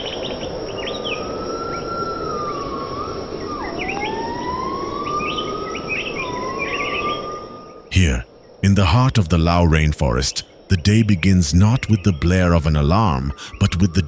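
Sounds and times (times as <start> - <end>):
dense steady background hiss: 0.0 - 14.0
long wavering whistling tone: 0.8 - 7.9.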